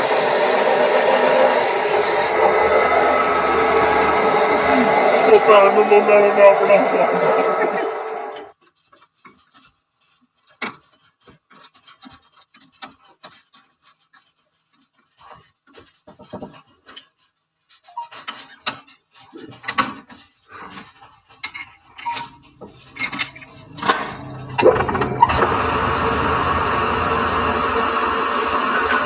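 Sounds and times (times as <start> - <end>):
metal clinking and scraping: 8.4 - 28.0.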